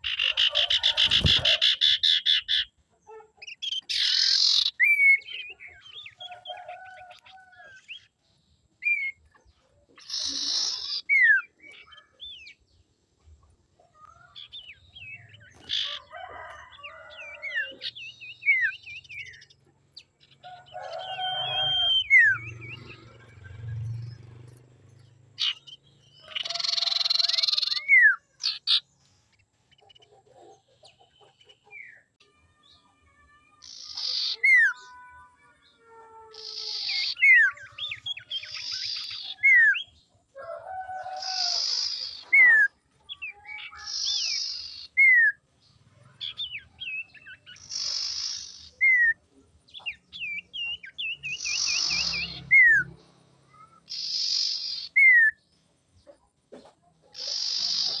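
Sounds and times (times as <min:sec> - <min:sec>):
bird harsh rasping calls: 0:00.0 - 0:08.1, 0:08.8 - 0:12.6, 0:13.9 - 0:24.4, 0:25.0 - 0:28.9, 0:33.5 - 0:35.3, 0:36.3 - 0:40.0, 0:41.2 - 0:45.2, 0:46.0 - 0:49.2, 0:53.5 - 0:55.4, 0:57.1 - 0:58.0
bird whistles and trills: 0:03.4 - 0:06.6, 0:21.4 - 0:23.5.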